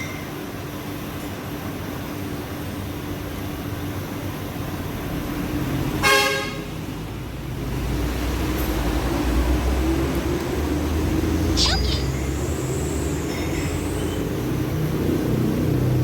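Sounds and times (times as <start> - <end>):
road traffic noise: 0.0 - 16.0
vehicle horn toot: 6.0 - 6.6
passing vehicle rumble: 7.5 - 16.0.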